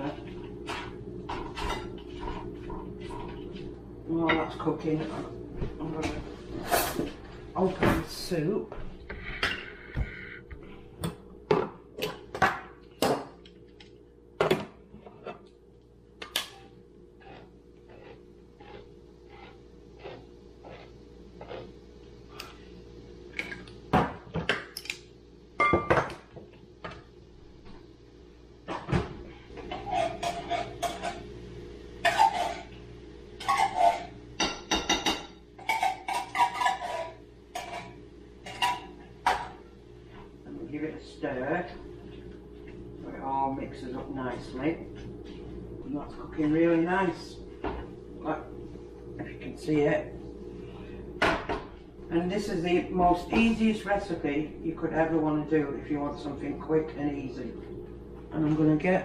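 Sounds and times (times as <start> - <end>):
steady low hum: 0.0 - 59.0
metal kitchenware clinking and scraping: 29.6 - 31.2, 32.0 - 32.7, 33.4 - 39.6.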